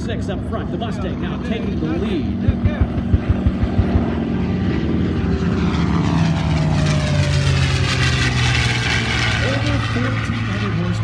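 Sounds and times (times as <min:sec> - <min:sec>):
propeller aircraft engines passing low: 0:00.0 - 0:11.0
low thumps: 0:02.4 - 0:04.2.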